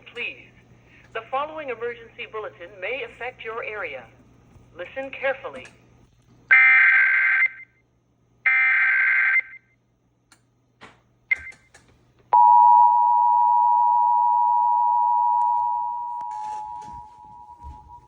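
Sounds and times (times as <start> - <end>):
steady two-tone alert signal: 12.4 - 18.0.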